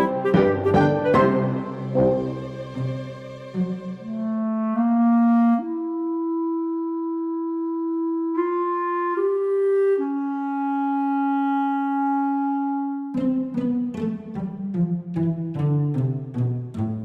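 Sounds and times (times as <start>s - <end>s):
woodwind holding long notes: 0.0s - 13.2s.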